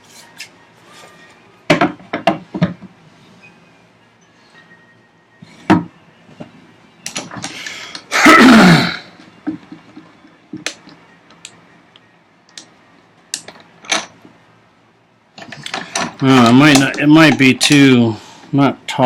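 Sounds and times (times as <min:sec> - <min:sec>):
man clearing throat: 0:08.1 - 0:09.1.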